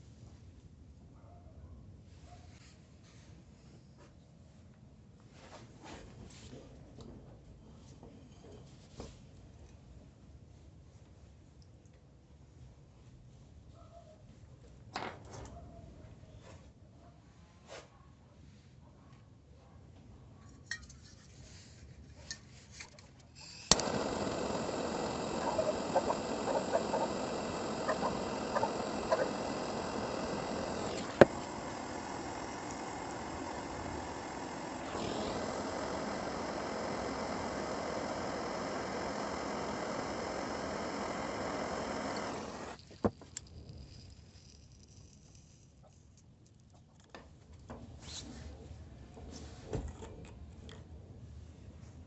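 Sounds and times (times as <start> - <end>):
crackles: 23.3 - 46.6
electric wood router whining: 23.4 - 42.8.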